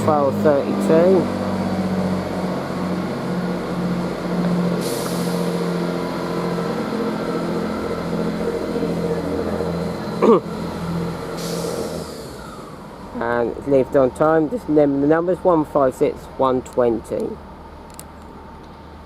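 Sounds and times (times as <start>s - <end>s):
loud rising tone: 0.0s - 14.6s
diesel train engines droning: 0.0s - 19.0s
air hiss: 4.8s - 5.7s, 11.3s - 12.7s.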